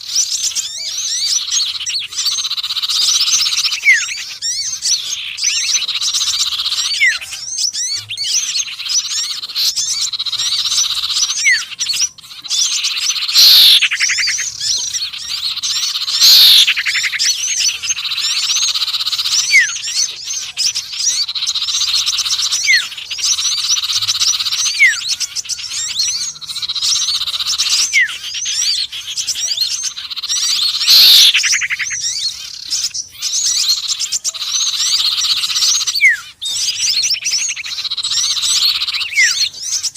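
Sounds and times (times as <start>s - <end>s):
songbirds chattering trills: 0.0s - 39.9s
loud downward sweeping bird call: 12.5s - 19.9s, 29.8s - 32.2s.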